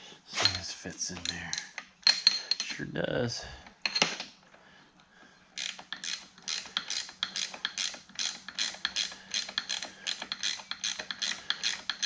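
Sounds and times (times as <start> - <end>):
ratchet wrench clicking: 5.6 - 12.0.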